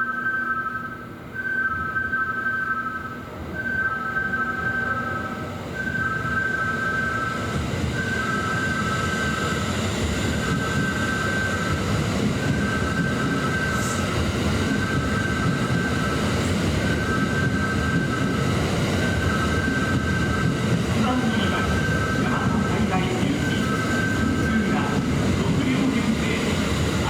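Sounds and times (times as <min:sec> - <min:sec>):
electric train rumbling: 0:00.0 - 0:27.0.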